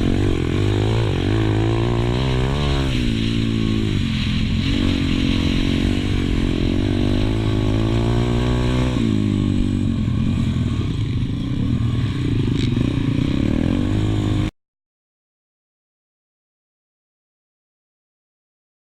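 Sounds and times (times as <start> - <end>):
pit bike engine revving: 0.0 - 14.5.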